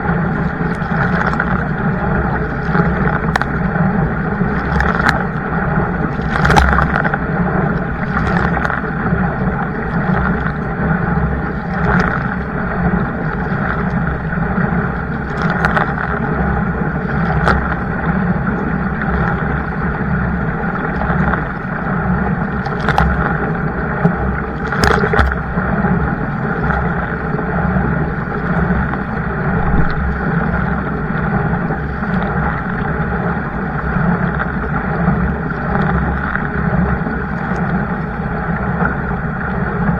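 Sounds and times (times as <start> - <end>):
rushing water: 0.0 - 39.9
knocks or splashes: 0.4 - 3.8, 4.4 - 5.4, 6.1 - 9.0, 17.1 - 17.9, 22.6 - 25.8, 28.3 - 31.3
wind noise: 22.8 - 33.4.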